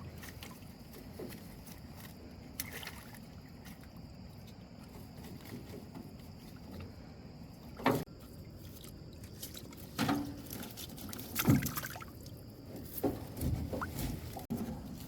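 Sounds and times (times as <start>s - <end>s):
water splashing and dripping: 0.0s - 4.6s, 7.8s - 12.4s.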